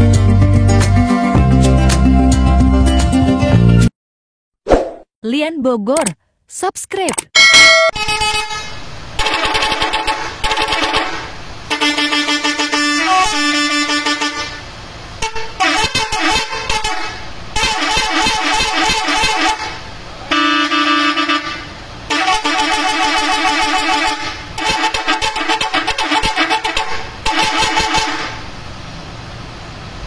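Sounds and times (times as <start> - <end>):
multi-tone musical bus horn: 7.9 - 28.6.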